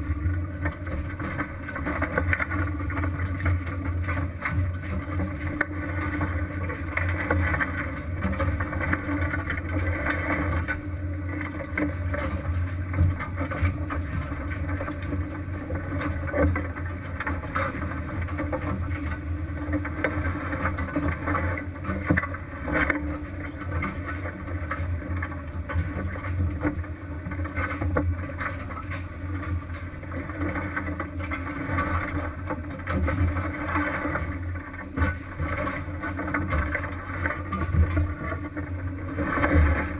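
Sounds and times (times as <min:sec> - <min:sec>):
boat engine low hum: 0:00.0 - 0:39.9.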